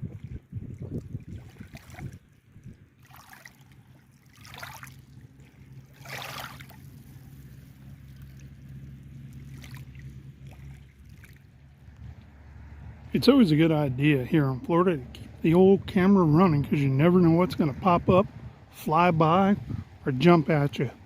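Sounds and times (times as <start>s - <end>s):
water splashing and lapping: 0.0s - 21.0s.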